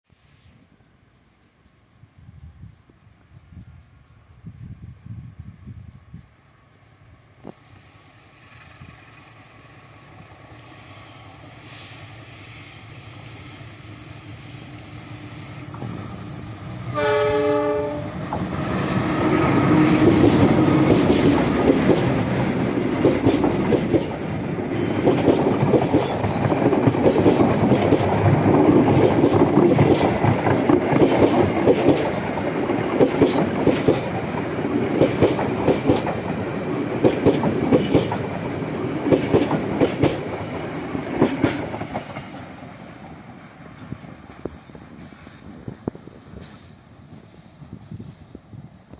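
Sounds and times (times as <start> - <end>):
train rumbling: 7.8 - 48.9
train horn: 16.7 - 22.3
wheel clatter over rail joints: 18.0 - 42.3.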